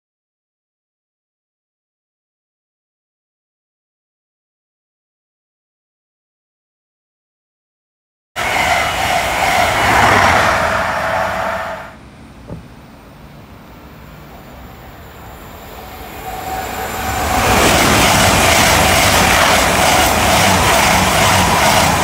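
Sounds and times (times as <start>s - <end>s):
train passing at speed: 8.4s - 22.0s.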